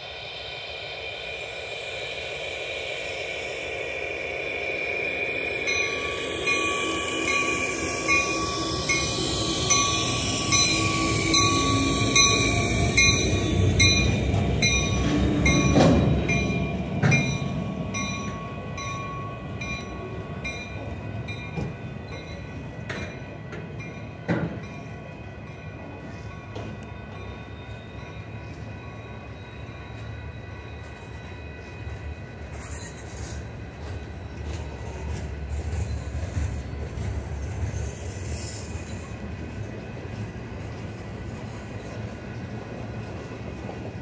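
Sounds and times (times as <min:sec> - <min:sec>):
diesel locomotive passing: 0:00.0 - 0:44.0
sharp bangs from train cars: 0:13.0 - 0:17.6.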